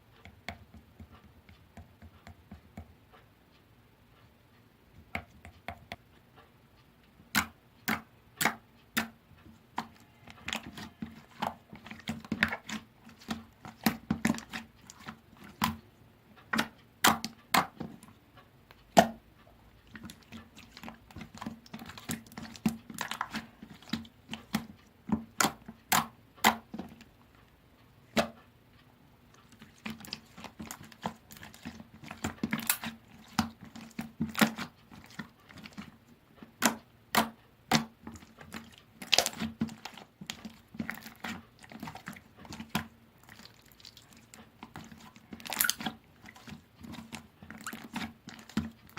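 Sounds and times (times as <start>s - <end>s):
slime squishing and popping: 16.5s - 18.0s, 19.9s - 27.0s, 29.5s - 35.9s, 36.5s - 48.9s.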